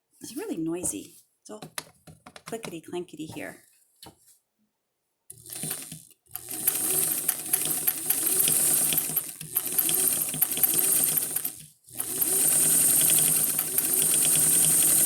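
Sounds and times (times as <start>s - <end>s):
sewing machine stitching: 5.3s - 15.0s.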